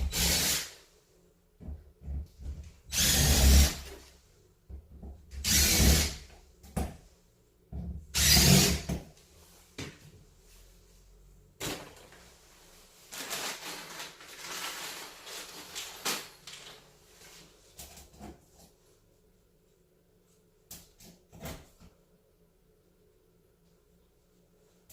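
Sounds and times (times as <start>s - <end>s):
power drill driving screws: 0.0s - 0.8s, 2.9s - 3.9s, 5.4s - 6.2s, 8.2s - 8.9s.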